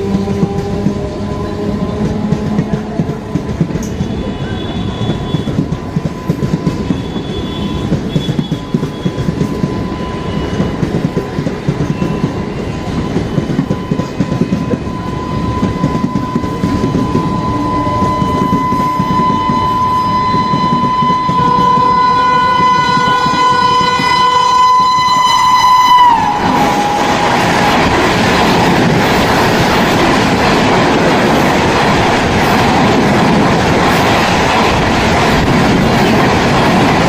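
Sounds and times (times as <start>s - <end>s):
train horn: 0.0s - 10.8s, 11.9s - 28.0s
train passing on rails: 0.0s - 37.0s.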